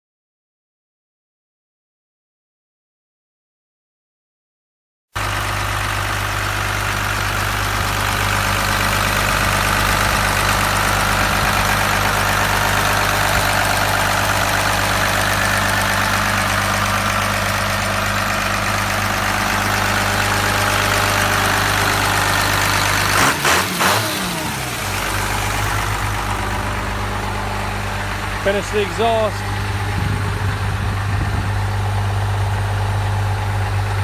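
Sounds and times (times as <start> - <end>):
diesel engine idling: 5.2 - 34.0.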